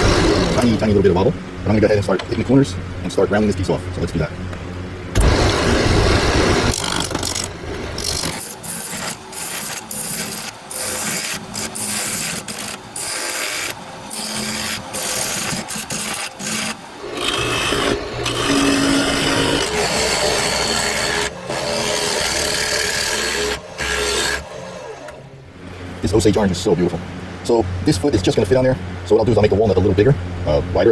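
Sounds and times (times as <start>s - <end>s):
lathe tool scraping wood: 0.0s - 1.0s, 5.2s - 25.2s
low lathe hum: 0.0s - 30.9s.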